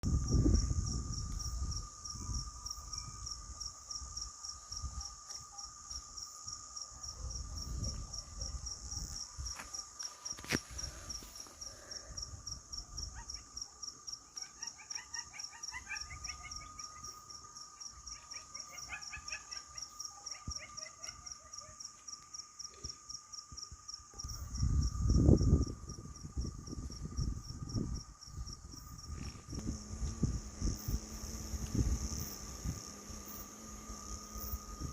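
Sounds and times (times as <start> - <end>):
wind on microphone: 0.0 - 5.2, 6.5 - 9.6, 24.2 - 34.9
crickets chirping chorus: 0.0 - 34.9
insect drone: 0.0 - 34.9.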